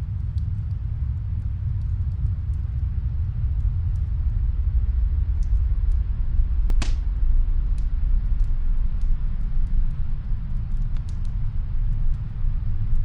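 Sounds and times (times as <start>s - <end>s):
faint fireplace crackles: 0.0s - 13.0s
snowstorm wind rumble: 0.0s - 13.0s
fire popping: 6.6s - 12.2s.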